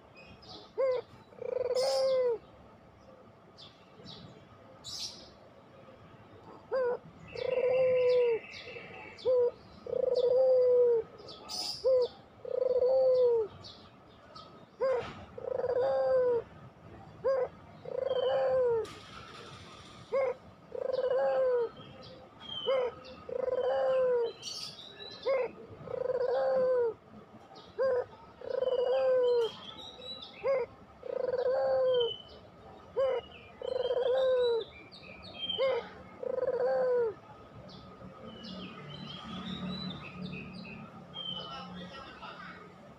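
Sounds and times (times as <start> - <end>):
dove cooing: 0.0 - 2.5, 6.5 - 13.6, 14.8 - 29.7, 30.4 - 37.4.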